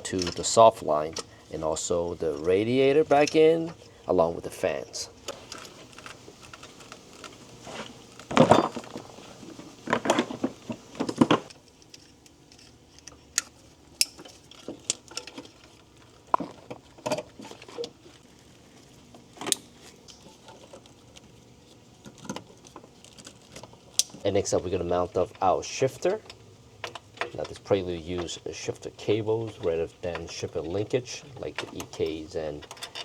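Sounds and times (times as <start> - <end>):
tools and metal parts clanking: 0.0 - 1.3, 5.3 - 18.0, 26.0 - 33.0.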